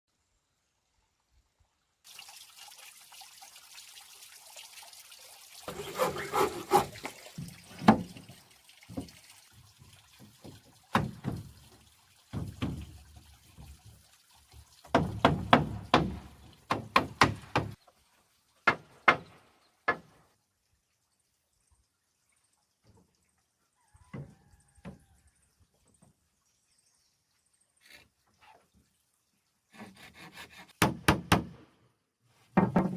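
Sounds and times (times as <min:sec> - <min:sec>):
water splashing and pouring: 0:02.1 - 0:18.5.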